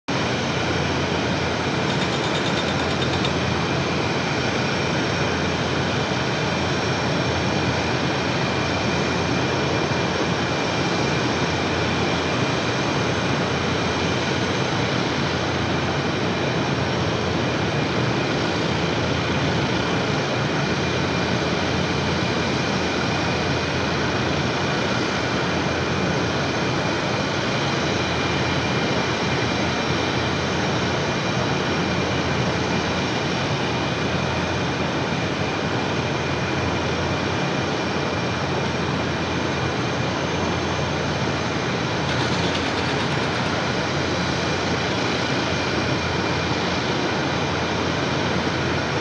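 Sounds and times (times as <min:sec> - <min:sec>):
high jet whine: 0:00.1 - 0:49.0
jet engines rushing: 0:00.1 - 0:49.0.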